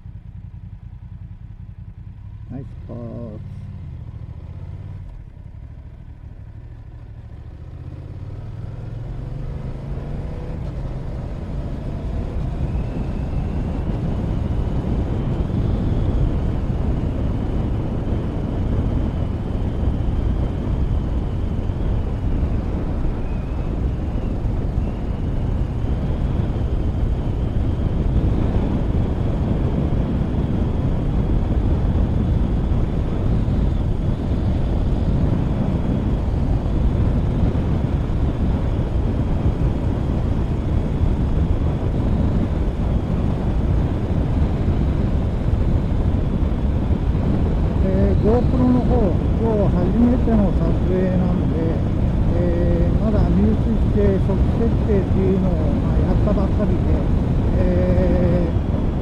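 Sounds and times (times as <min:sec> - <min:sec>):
motorcycle engine pulling away: 0:03.6 - 0:31.1
wind rushing over microphone: 0:07.2 - 0:59.0.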